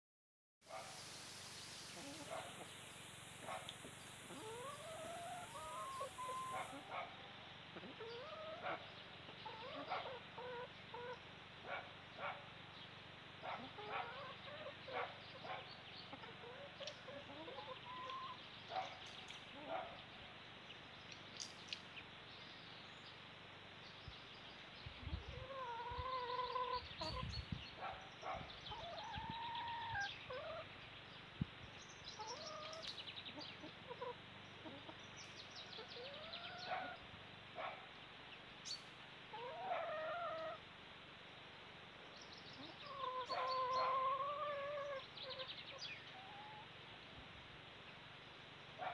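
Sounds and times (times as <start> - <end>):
drawn-out bird calls: 0.7 - 7.2, 42.5 - 46.8
birds chirping: 0.7 - 40.6, 42.0 - 46.7.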